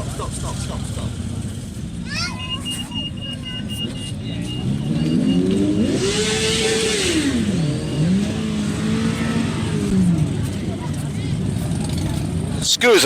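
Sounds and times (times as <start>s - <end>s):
motorcycle engine revving: 4.1s - 12.6s.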